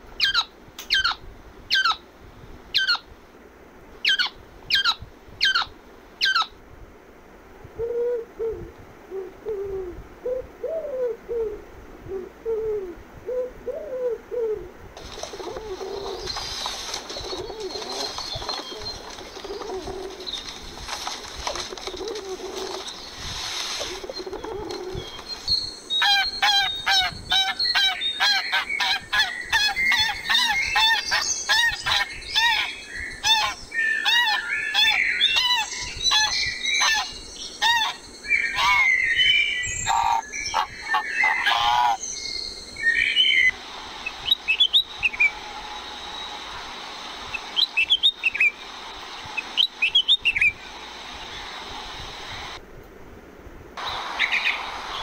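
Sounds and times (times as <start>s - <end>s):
pigeons cooing: 7.8s - 23.1s, 23.8s - 25.4s, 39.9s - 42.0s
songbird chirps: 15.0s - 51.8s.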